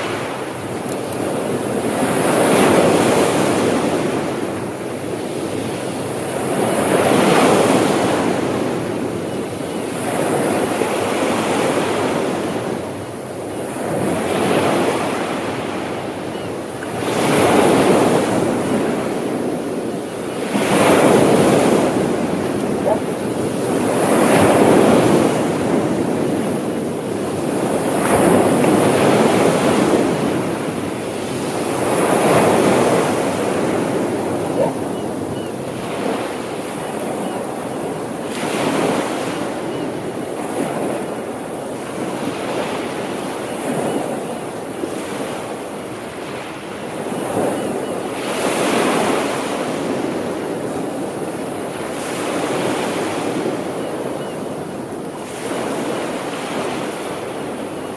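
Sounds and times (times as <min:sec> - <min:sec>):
wind on microphone: 0:00.0 - 0:46.1
sea waves breaking on shore: 0:00.0 - 0:57.9.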